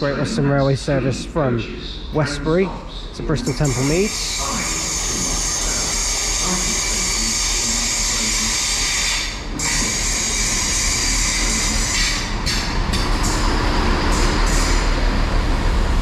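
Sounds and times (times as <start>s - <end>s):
train rushing: 3.2s - 16.0s.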